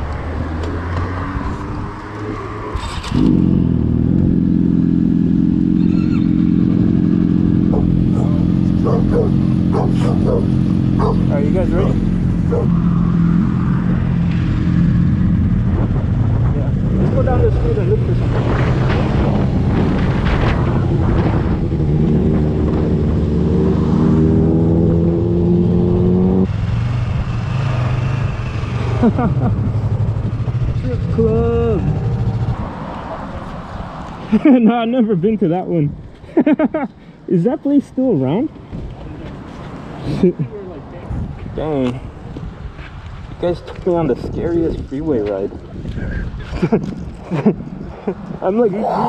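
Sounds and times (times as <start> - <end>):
motorcycle engine accelerating: 0.0 - 33.8
motorcycle engines idling: 5.4 - 12.8.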